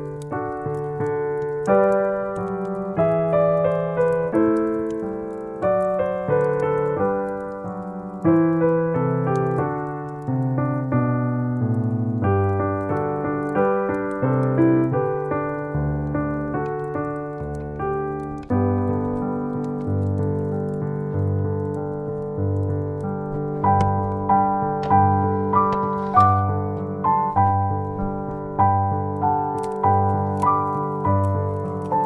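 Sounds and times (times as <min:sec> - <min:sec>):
solo piano music: 0:00.0 - 0:32.0.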